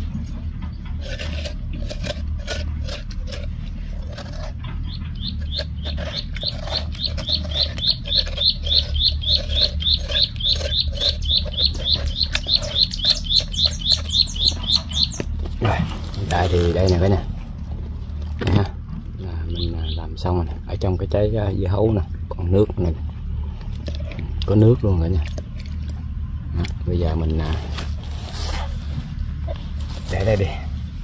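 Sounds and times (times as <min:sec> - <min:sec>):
spoon scraping watermelon flesh: 0:00.0 - 0:17.5
bird chirping: 0:04.7 - 0:15.7, 0:19.2 - 0:21.0.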